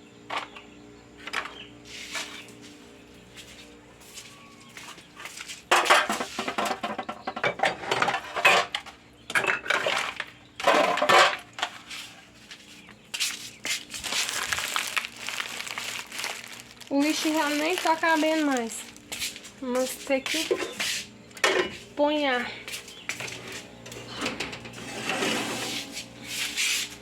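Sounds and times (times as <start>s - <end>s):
dishes and pots clattering: 5.7s - 11.8s, 21.4s - 21.8s.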